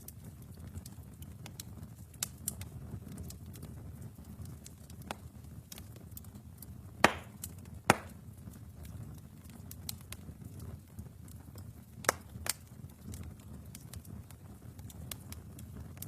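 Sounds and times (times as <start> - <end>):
fire pops: 0.0 - 16.0
wood fire crackling: 0.0 - 16.0.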